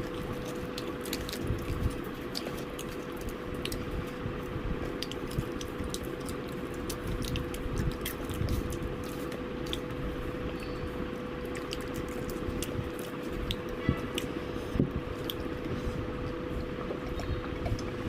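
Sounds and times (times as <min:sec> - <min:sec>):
chewing and wet mouth sounds: 0:00.0 - 0:18.0.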